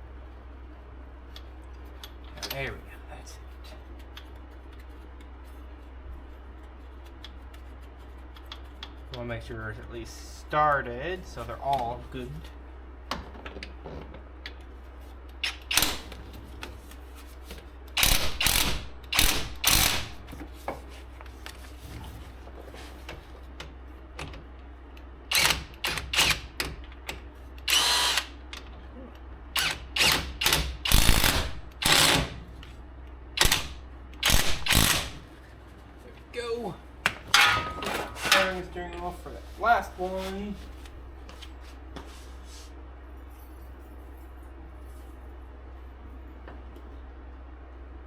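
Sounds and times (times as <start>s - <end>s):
power tool bursts: 27.7s - 28.3s, 29.6s - 32.3s, 33.4s - 35.2s.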